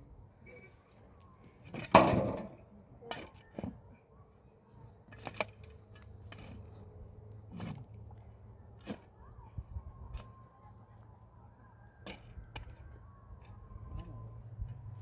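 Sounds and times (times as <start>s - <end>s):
knocks and clatters of objects: 1.6s - 2.6s.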